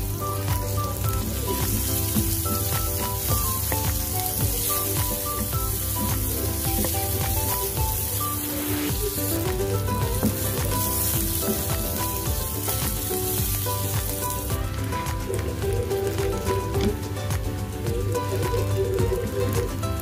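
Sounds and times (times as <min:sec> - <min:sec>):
aromatics sizzling in hot oil: 0:00.0 - 0:17.0
light background music: 0:00.0 - 0:20.0.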